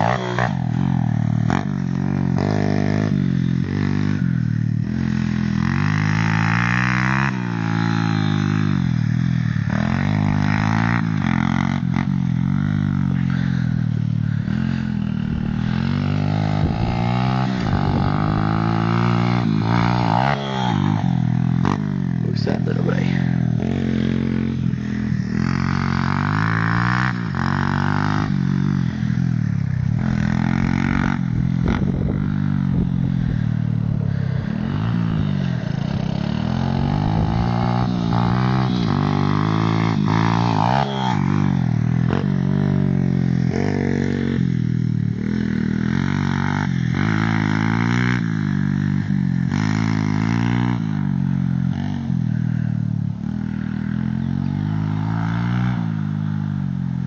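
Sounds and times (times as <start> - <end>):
small motorcycle engine revving: 0.0 - 57.0.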